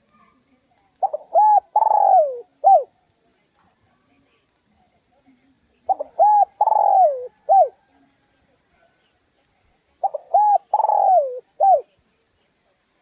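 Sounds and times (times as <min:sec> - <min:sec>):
spotted dove cooing: 0:01.0 - 0:02.9, 0:05.9 - 0:07.8, 0:10.0 - 0:11.9.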